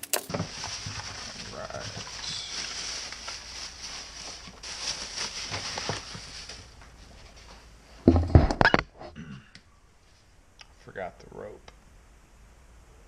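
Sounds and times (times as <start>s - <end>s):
items rustling and knocking: 0.0s - 8.9s
loud clatter of knocks: 8.1s - 8.8s.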